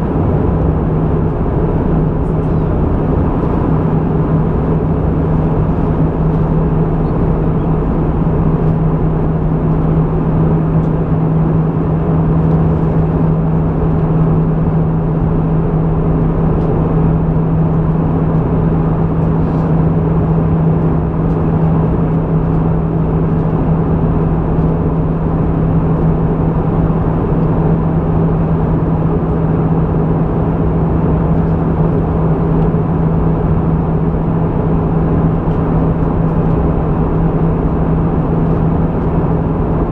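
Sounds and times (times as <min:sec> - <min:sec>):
constant low hum: 0:00.0 - 0:39.9
jet engine drone and airflow: 0:00.0 - 0:39.9.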